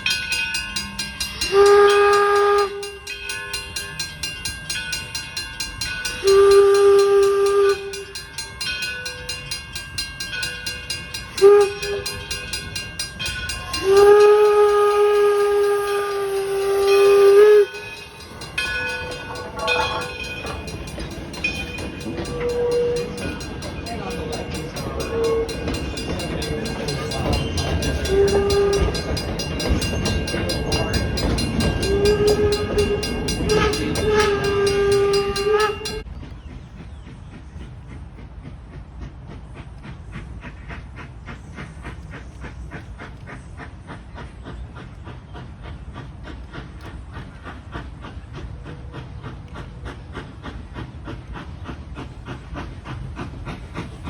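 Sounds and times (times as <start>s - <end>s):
steam locomotive whistle: 0.0s - 4.2s, 5.9s - 9.5s, 10.4s - 36.1s
steam engine exhaust beat: 0.0s - 54.0s.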